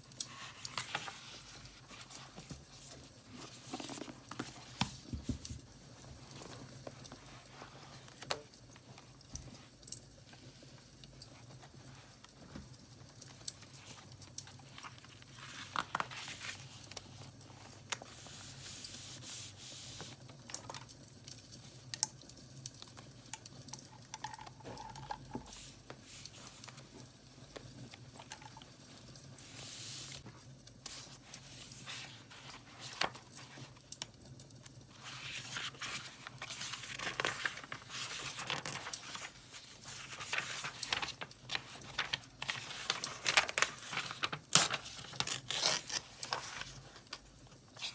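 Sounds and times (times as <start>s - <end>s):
paper rustling and tearing: 0.3s - 5.6s, 13.6s - 20.2s, 30.9s - 33.7s, 34.9s - 47.2s.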